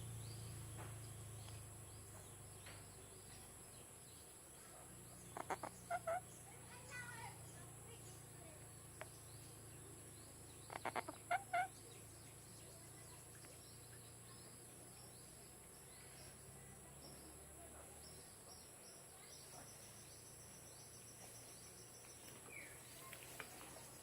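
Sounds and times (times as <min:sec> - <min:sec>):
parrot chuckling calls: 0:05.4 - 0:06.2, 0:10.7 - 0:11.7.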